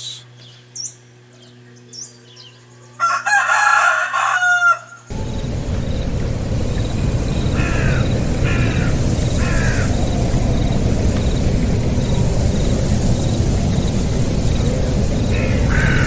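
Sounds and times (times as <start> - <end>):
bird calling: 0.0 - 3.0, 4.4 - 16.0
loud low rushing noise: 5.1 - 16.0.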